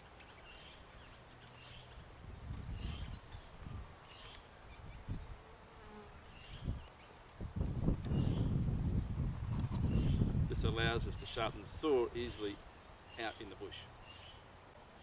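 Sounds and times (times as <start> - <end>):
insect buzzing: 2.7 - 10.5.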